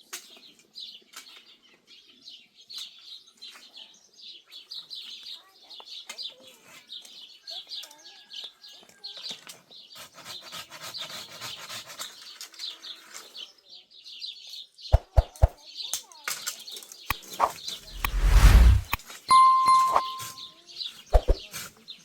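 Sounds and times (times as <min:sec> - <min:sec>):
rustling scraping noise: 0:17.9 - 0:19.0.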